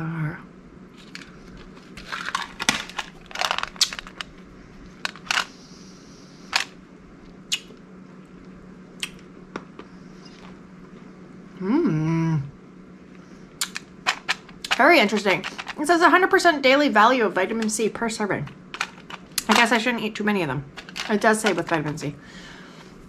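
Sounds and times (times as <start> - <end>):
crunching hard mint: 1.0 - 4.4
mouth smacks: 7.5 - 7.8.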